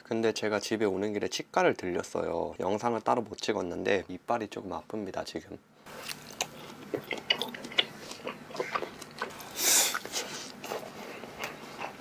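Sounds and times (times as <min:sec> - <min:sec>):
person chewing: 0:05.9 - 0:12.0.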